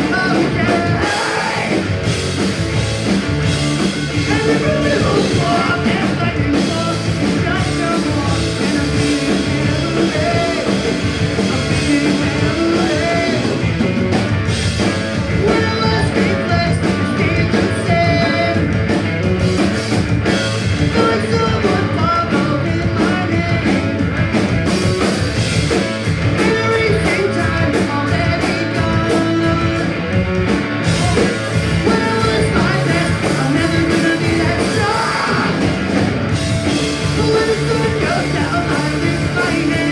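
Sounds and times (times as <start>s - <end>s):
person singing: 0.0s - 1.9s, 4.2s - 13.6s, 15.3s - 18.7s, 26.4s - 29.9s, 30.9s - 35.8s, 36.8s - 39.9s
punk rock band playing live: 0.0s - 39.9s.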